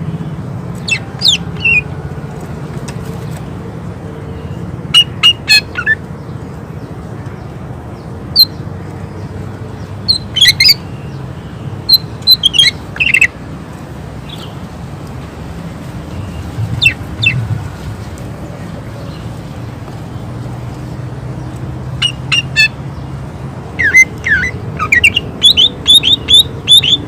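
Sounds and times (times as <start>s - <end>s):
low background rumble: 15.3s - 19.6s.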